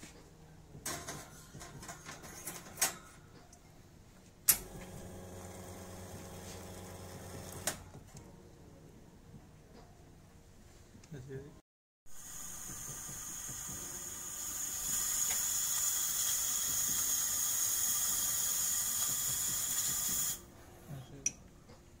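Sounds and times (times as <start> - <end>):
steam wand hissing: 12.1 - 20.5.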